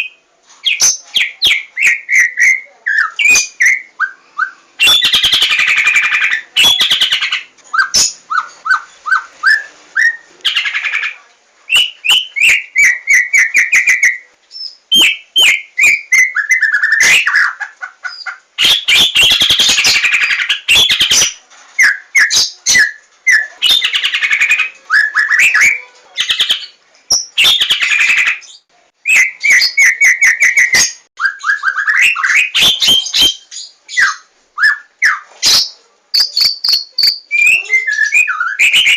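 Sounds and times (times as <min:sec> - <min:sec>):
bird singing: 0:11.7 - 0:38.9.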